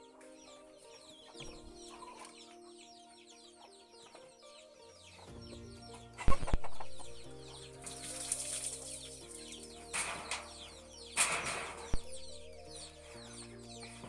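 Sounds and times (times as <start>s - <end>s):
background music of held notes: 0.0s - 14.0s
chickens clucking: 0.0s - 14.0s
rustling: 7.8s - 10.6s
sharp knocks: 9.9s - 12.3s.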